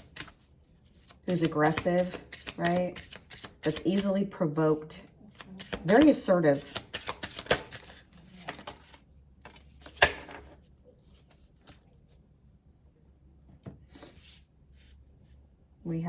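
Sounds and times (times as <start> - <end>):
cards being shuffled: 0.0 - 4.1, 5.3 - 12.0
faint card rustles: 5.3 - 12.6.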